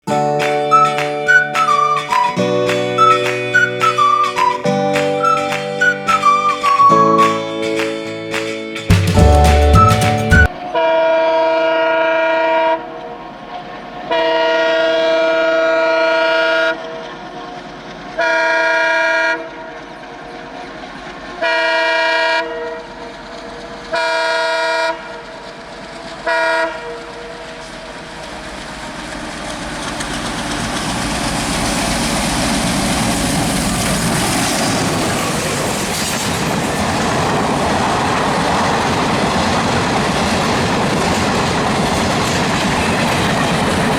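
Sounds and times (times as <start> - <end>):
train passing: 0.0 - 43.9
wheels clattering over rail joints: 23.1 - 43.9.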